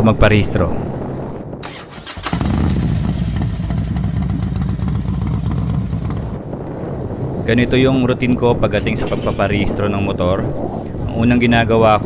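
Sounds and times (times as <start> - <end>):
motorcycle engine running: 2.2 - 6.6.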